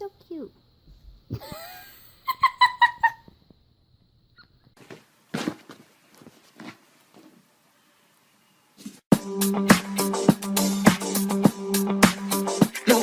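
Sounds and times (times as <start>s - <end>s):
light knocks and scuffling: 4.8s - 7.5s.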